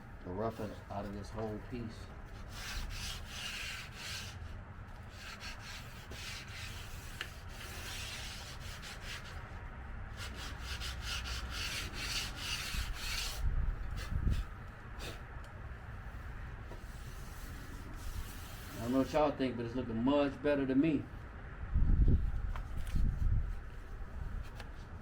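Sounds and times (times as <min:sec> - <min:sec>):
sandpaper rubbing on filler: 0:02.3 - 0:04.5, 0:05.1 - 0:09.4, 0:10.1 - 0:13.4, 0:16.8 - 0:19.3.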